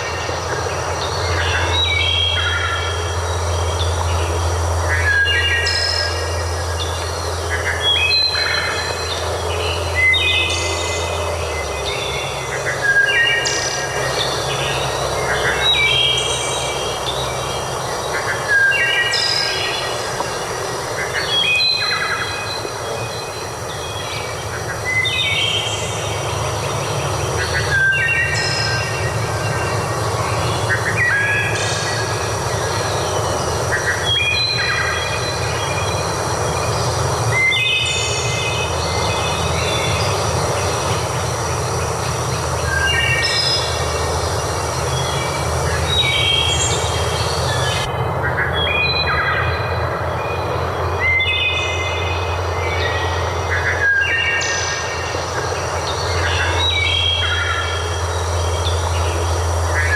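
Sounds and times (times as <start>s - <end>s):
birds singing whistled notes: 0.0s - 59.9s
low hum: 0.0s - 59.9s
steady rushing noise: 0.0s - 59.9s.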